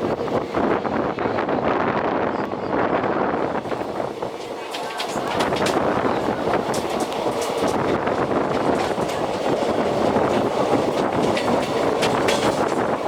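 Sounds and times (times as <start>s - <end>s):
train coaches rumbling past: 0.0s - 13.0s
wheels clicking over rail joints: 3.5s - 13.0s.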